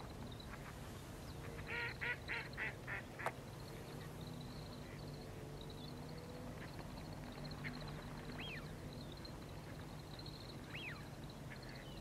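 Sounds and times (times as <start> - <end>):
birds twittering: 0.2 - 12.0.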